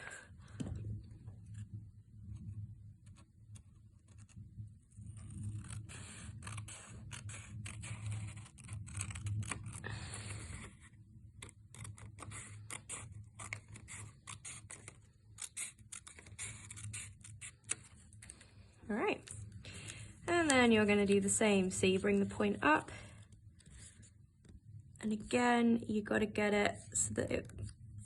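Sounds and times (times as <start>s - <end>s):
paper rustling and scraping: 3.0s - 21.3s, 21.9s - 24.6s
scissors snipping paper: 5.1s - 10.8s, 11.4s - 18.4s.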